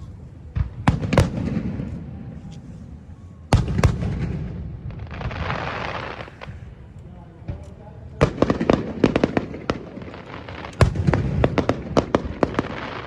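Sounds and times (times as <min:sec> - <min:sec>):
fireworks booms: 0:00.5 - 0:02.2, 0:03.5 - 0:06.8, 0:08.2 - 0:13.0
fireworks crackle: 0:03.5 - 0:06.8, 0:08.2 - 0:13.0.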